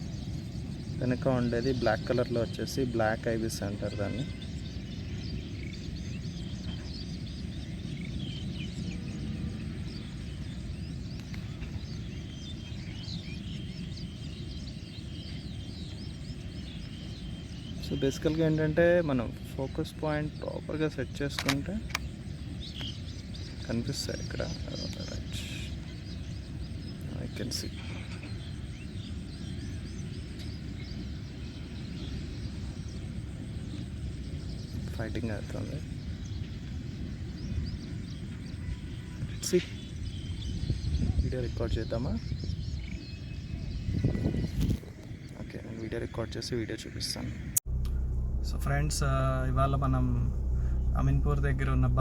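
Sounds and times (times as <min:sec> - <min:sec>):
small birds chirping: 0:00.0 - 0:52.0
high bird chirps: 0:03.8 - 0:09.1, 0:47.6 - 0:52.0
low outdoor rumble: 0:47.2 - 0:52.0.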